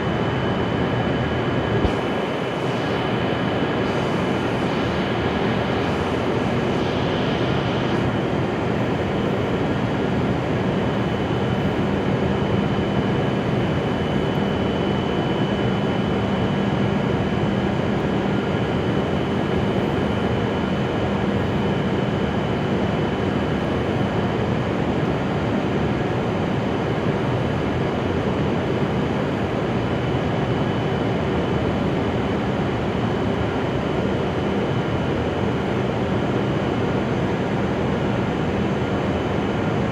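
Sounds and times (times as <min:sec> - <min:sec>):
faint high whine: 0:00.0 - 0:24.3.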